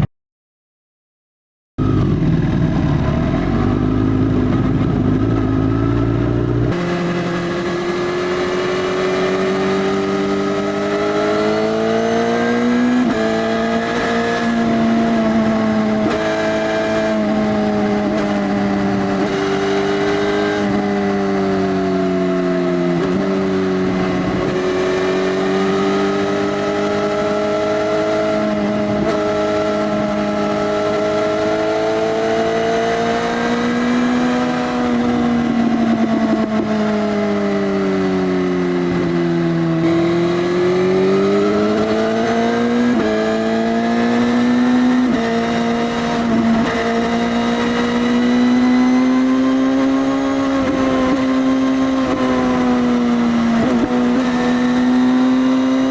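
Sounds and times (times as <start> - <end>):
deep rumble: 1.8 - 6.7
motorcycle engine at steady revs: 1.8 - 55.9.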